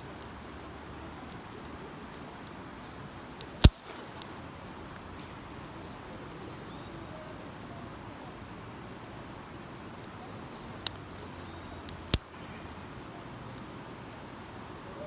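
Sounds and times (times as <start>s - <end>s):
campfire crackling: 0.0s - 15.0s
loud sharp pop: 3.6s - 4.3s.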